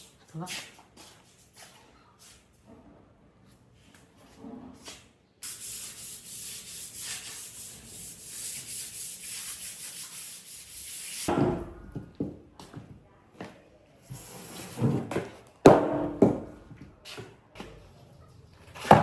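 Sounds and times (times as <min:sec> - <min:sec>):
wood being sanded: 0:05.6 - 0:11.3
loud knocks: 0:15.7 - 0:16.6.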